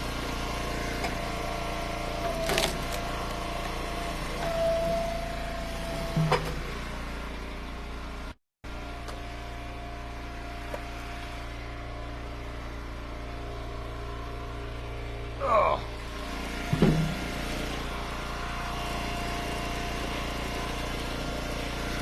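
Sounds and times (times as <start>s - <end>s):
held whine: 0.0s - 8.2s
wood splitter engine running: 0.0s - 22.0s.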